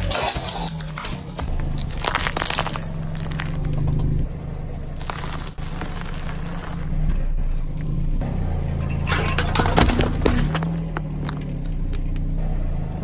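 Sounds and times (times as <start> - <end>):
objects crushed under car tyre: 0.0 - 4.3, 5.0 - 7.1, 8.6 - 12.3.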